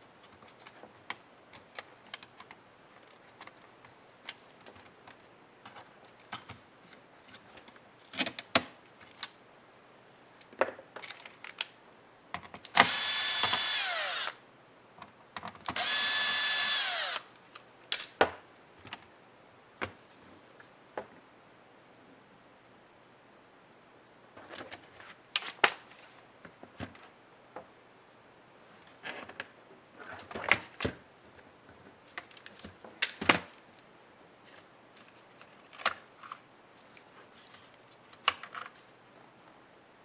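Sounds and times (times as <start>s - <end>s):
electric screwdriver whining: 12.8s - 14.4s, 15.8s - 17.3s
tools and plastic parts clicking: 15.4s - 17.2s.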